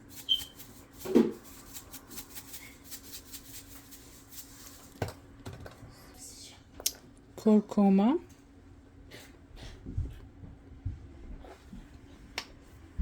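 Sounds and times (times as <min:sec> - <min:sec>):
salt sprinkled onto chicken: 0:00.0 - 0:05.0.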